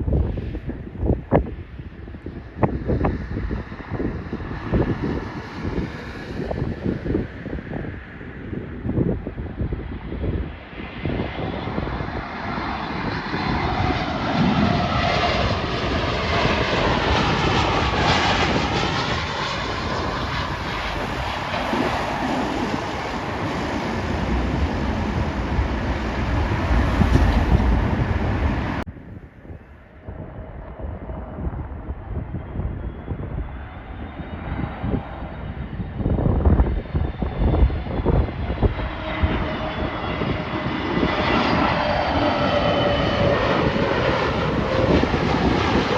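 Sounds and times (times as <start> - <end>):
jet airliner engine whine: 0.0 - 45.9
wind buffeting microphone: 0.0 - 45.9.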